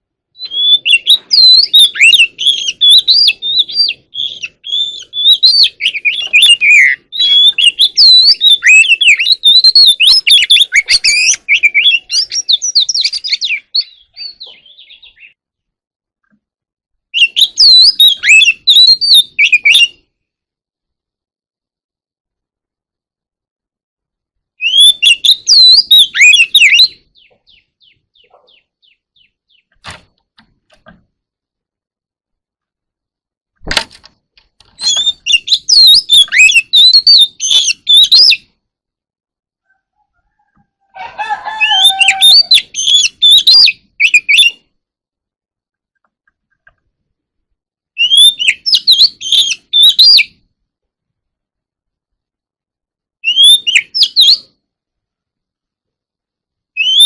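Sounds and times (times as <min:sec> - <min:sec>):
bird singing whistled notes: 0:00.3 - 0:15.4, 0:17.1 - 0:20.2, 0:24.6 - 0:29.8, 0:34.8 - 0:38.6, 0:41.6 - 0:44.8, 0:48.0 - 0:50.4, 0:53.2 - 0:54.6, 0:56.7 - 0:57.0
sharp click: 0:33.6 - 0:34.8.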